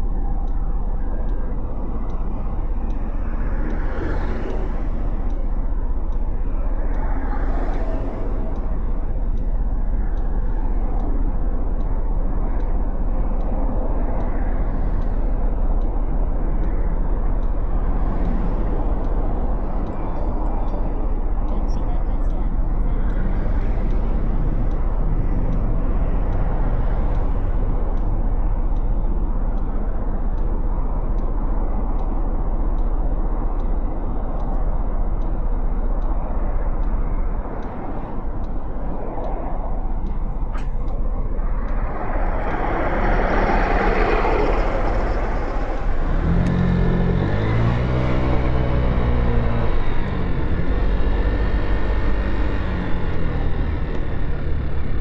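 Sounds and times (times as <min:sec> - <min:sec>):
road noise: 0:00.0 - 0:55.0
traffic noise: 0:00.0 - 0:55.0
wind noise: 0:00.0 - 0:55.0
motorcycle engine rumbling and revving: 0:39.8 - 0:55.0.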